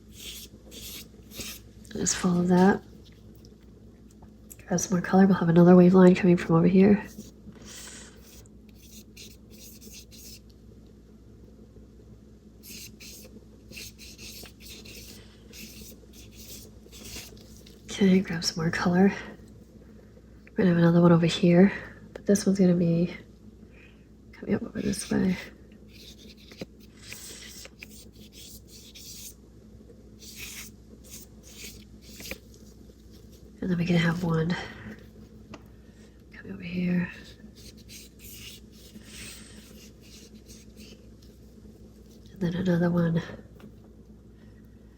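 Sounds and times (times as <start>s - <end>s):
paintbrush stroking on paper: 0.0s - 2.8s, 7.0s - 10.4s, 12.6s - 17.8s, 24.8s - 29.3s, 30.2s - 34.3s, 37.2s - 42.2s
faint low hum: 0.0s - 44.9s.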